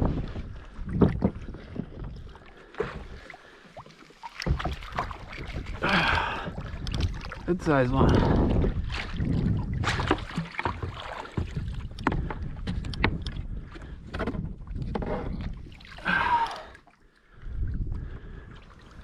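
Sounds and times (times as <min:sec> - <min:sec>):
water splashing: 0:01.0 - 0:12.3, 0:14.9 - 0:17.3.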